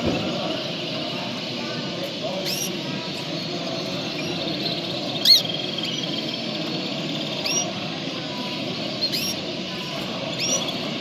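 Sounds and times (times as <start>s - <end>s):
background murmur: 0.0s - 11.0s
birds chirping: 0.0s - 11.0s
bird trill: 2.3s - 11.0s.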